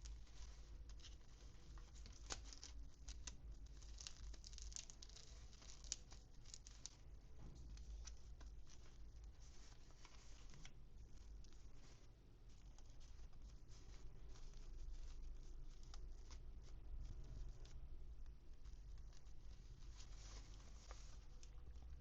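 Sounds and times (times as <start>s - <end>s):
toy packaging crinkling and tearing: 0.0s - 7.0s.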